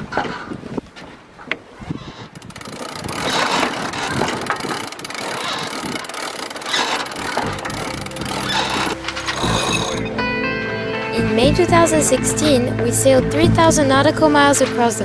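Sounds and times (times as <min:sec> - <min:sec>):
scattered clicks: 0:02.4 - 0:10.0.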